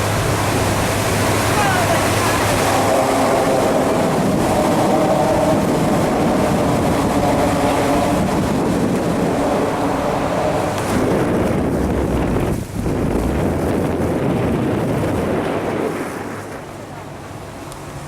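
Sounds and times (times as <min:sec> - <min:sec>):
boat engine rumble: 0:00.0 - 0:18.0
rushing water: 0:00.0 - 0:18.0
wind: 0:00.0 - 0:18.0.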